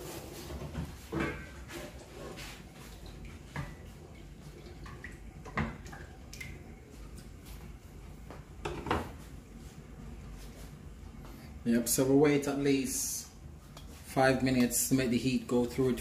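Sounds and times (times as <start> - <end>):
liquid sloshing in a pot: 0.1 - 7.4.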